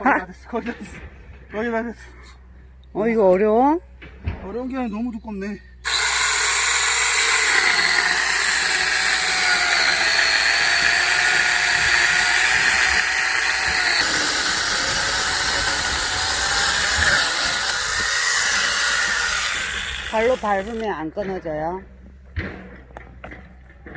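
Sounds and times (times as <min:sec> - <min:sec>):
electric chainsaw cutting log: 0:05.8 - 0:21.0.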